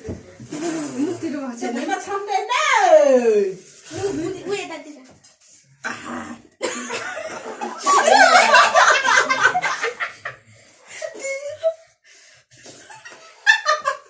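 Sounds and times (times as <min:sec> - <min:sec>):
people laughing: 0:06.8 - 0:10.4.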